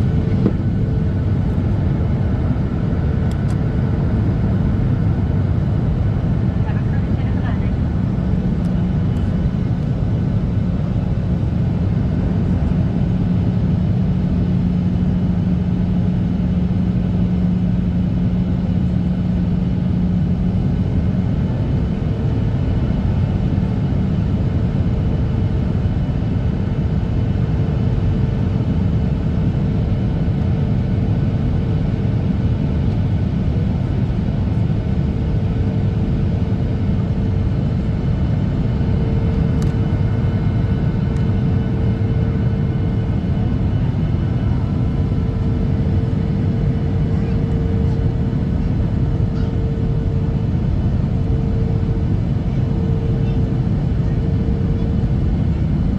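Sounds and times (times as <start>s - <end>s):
jet engine rumble in cabin: 0.0s - 55.9s
low hum: 37.1s - 52.2s.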